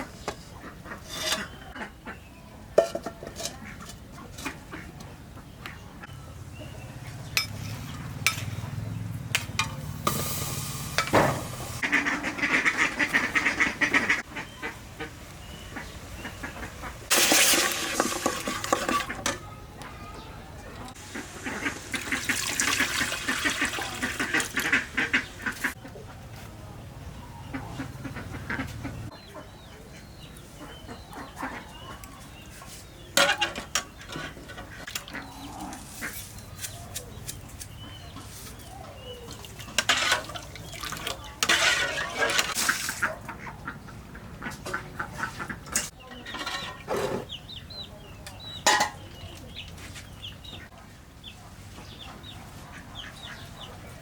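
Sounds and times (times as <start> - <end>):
poultry calling: 27.3 - 48.0.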